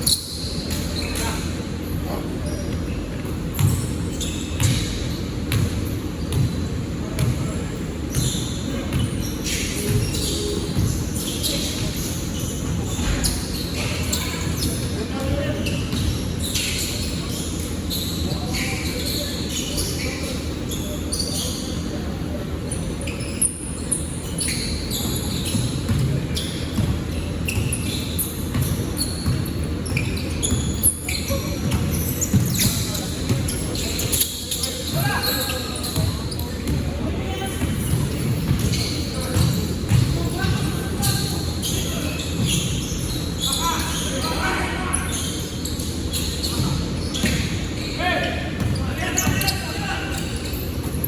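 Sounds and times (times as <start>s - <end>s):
murmur of voices: 0.0s - 51.0s
basketball bouncing on court: 0.2s - 12.0s, 12.6s - 17.2s, 24.5s - 43.2s, 46.2s - 47.6s, 48.5s - 49.6s.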